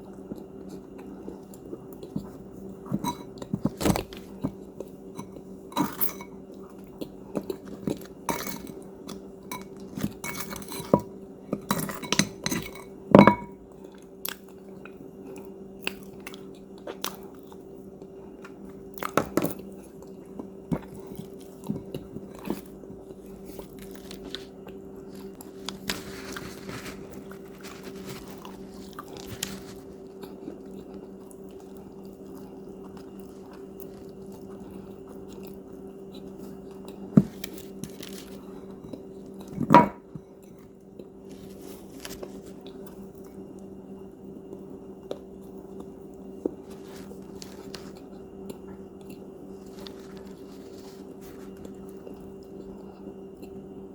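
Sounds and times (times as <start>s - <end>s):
steady low hum: 0.0s - 53.9s
cookies being bitten and chewed: 13.7s - 39.6s, 40.3s - 53.8s.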